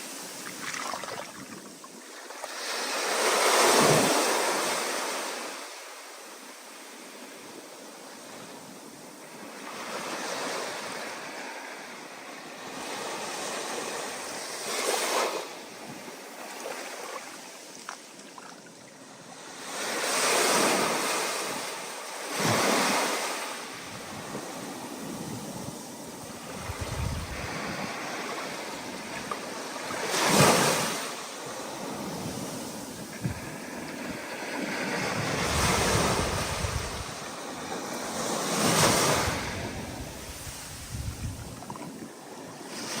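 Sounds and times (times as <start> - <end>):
wind: 0.0 - 43.0
stormy ocean waves breaking: 19.8 - 43.0.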